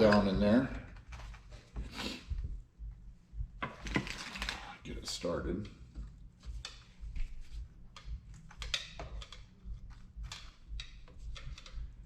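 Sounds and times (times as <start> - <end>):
metal fork parts clicking and tapping: 7.9 - 12.0.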